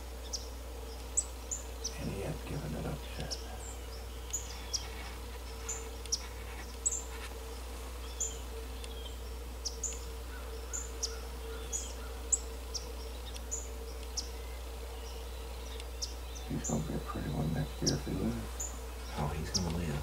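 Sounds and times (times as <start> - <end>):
faint steady hum: 0.0 - 20.0
small birds chirping: 0.0 - 20.0.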